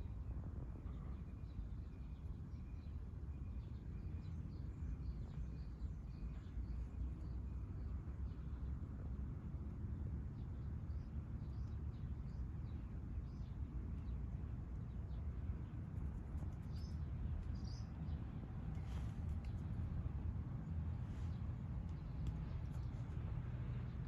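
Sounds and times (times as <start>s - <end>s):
steady low rumble: 8.0s - 24.0s
small birds chirping: 10.4s - 24.0s.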